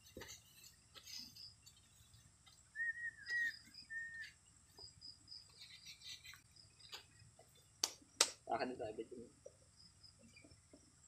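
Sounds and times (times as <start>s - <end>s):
faint high bird chirps: 0.5s - 7.3s
short whistled bird notes: 2.8s - 4.4s.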